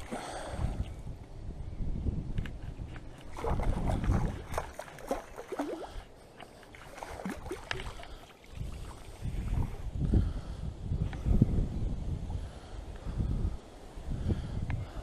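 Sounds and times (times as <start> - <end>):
water splashing and sloshing: 0.0 - 1.0, 2.4 - 10.0
wind rumbling on microphone: 0.0 - 15.0.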